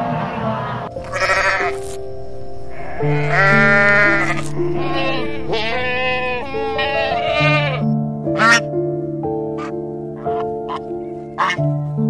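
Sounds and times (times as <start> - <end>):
soft piano music: 0.0 - 12.0
goats bleating: 1.0 - 1.8, 2.7 - 8.6.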